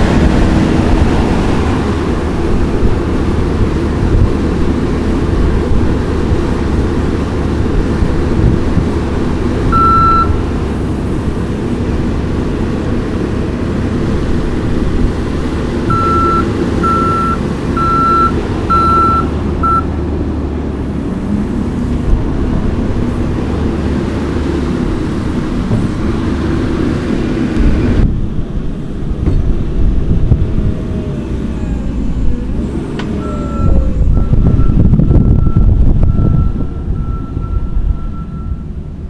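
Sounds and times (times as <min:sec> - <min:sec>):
diesel engine running: 0:00.0 - 0:39.0
backup alarm beeping: 0:09.7 - 0:10.4, 0:15.9 - 0:19.9, 0:33.2 - 0:38.8.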